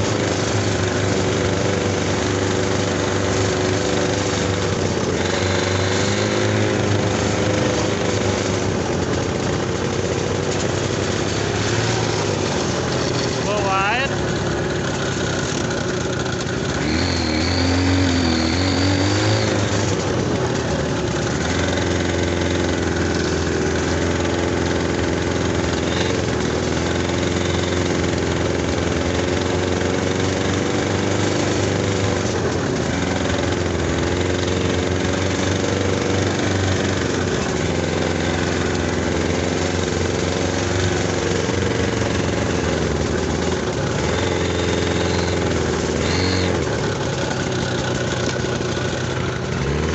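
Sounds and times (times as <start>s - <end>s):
snowmobile engine running: 0.0s - 49.9s.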